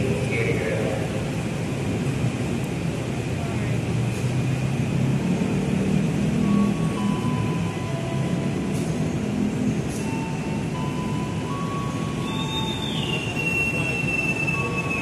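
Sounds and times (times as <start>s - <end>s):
train rumbling: 0.0s - 15.0s
thin wheel squeals: 11.8s - 15.0s.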